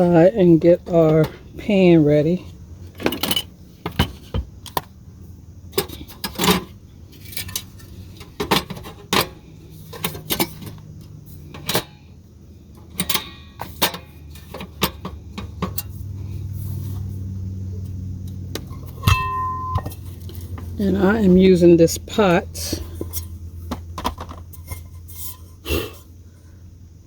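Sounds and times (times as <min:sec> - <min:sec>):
low steady hum: 0:00.0 - 0:27.0
cookware clinking and knocking: 0:19.0 - 0:20.0.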